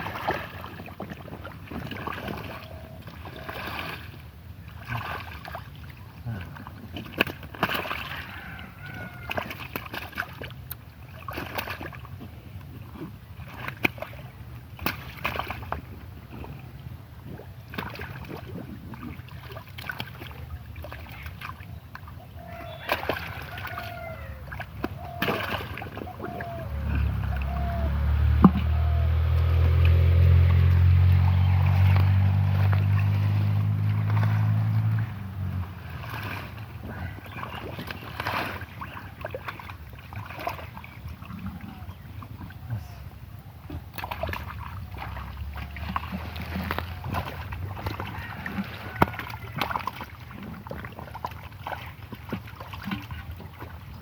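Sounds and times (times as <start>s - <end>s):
water splashing by hands: 0.0s - 54.0s
low rumble: 26.4s - 37.2s.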